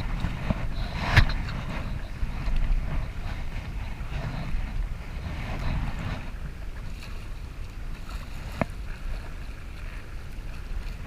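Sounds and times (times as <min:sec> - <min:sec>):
rushing splashing water: 0:00.0 - 0:11.0
wind rumbling on microphone: 0:00.0 - 0:11.0.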